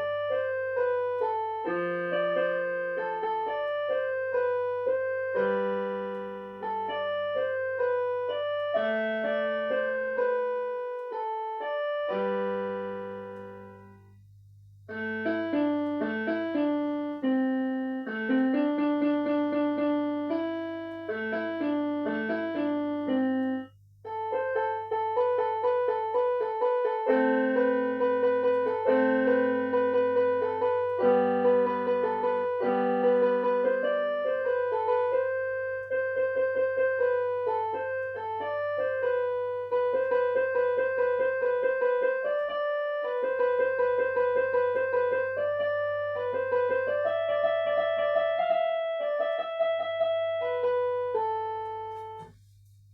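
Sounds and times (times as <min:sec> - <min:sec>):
piano music: 0:00.0 - 0:14.2, 0:14.9 - 0:52.4.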